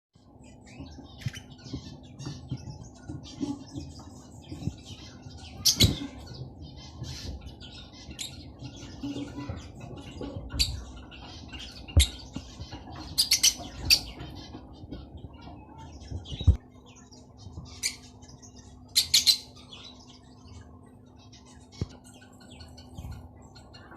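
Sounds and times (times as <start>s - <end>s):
lovebirds chirping and twittering: 0.2s - 23.9s.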